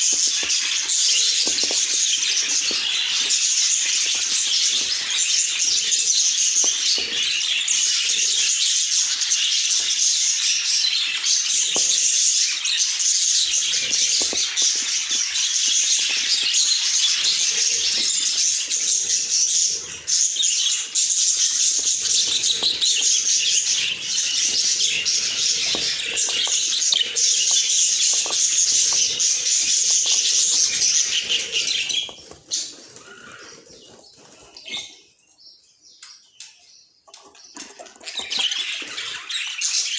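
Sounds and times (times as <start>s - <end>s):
budgerigars chirping: 0.0s - 35.1s.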